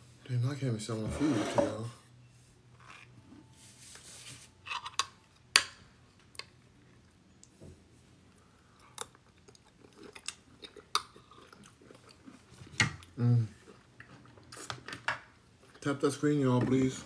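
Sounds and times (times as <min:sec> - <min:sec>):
person chewing food: 0:08.3 - 0:15.8.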